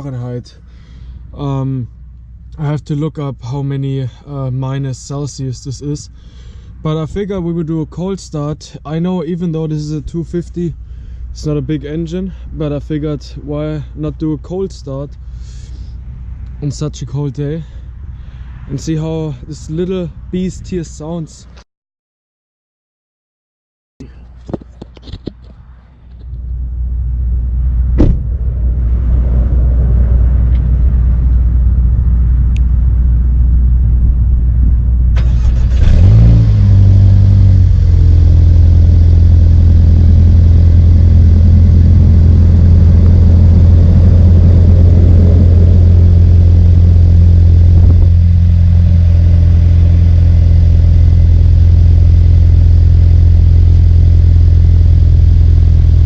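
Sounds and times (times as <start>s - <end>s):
car engine starting and idling: 0.0s - 20.0s, 24.4s - 56.0s
low rumble: 25.6s - 56.0s.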